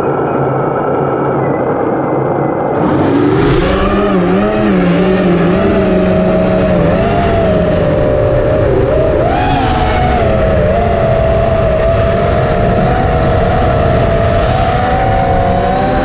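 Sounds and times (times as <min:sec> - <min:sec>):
drone motors whining: 0:02.8 - 0:16.0.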